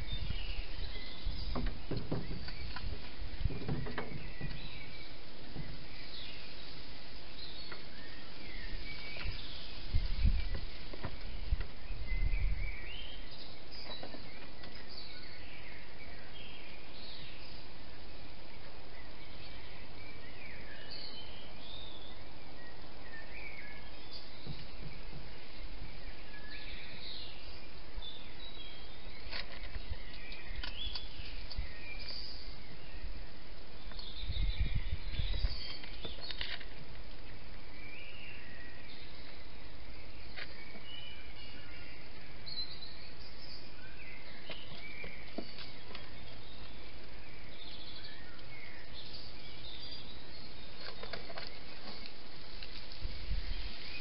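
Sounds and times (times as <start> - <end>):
bird chirps: 0.0 - 17.8, 18.5 - 54.0
background hiss: 0.0 - 54.0.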